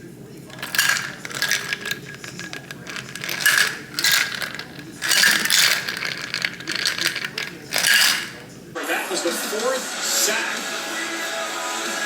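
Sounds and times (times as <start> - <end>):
ice cubes rattling: 0.5 - 8.5.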